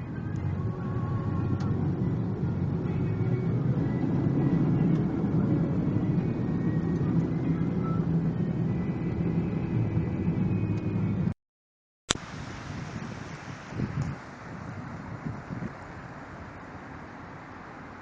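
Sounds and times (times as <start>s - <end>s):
truck engine and road rumble: 0.0s - 11.4s, 12.1s - 18.0s
wind noise: 12.1s - 17.2s.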